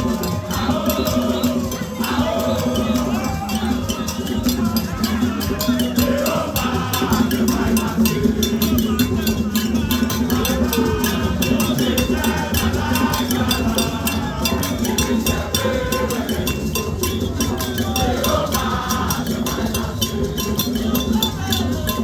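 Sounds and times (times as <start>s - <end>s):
crowd singing and chanting: 0.0s - 22.0s
fast percussion beat: 0.0s - 22.0s.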